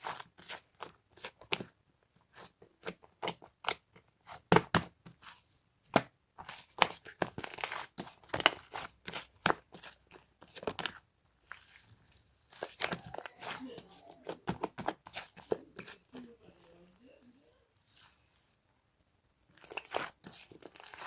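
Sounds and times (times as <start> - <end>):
crisp material crackling and crunching: 19.5 - 21.0.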